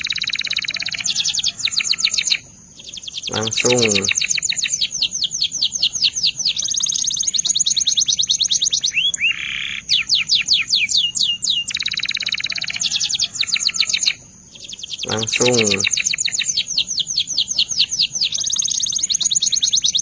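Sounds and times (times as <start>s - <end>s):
canary singing trills: 0.0s - 20.0s.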